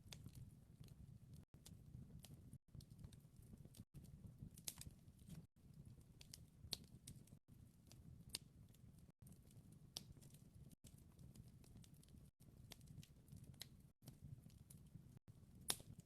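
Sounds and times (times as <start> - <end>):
low rumble of burning logs: 0.0 - 16.0
wood fire crackling: 0.0 - 16.0
sharp pops of fire: 15.6 - 16.0.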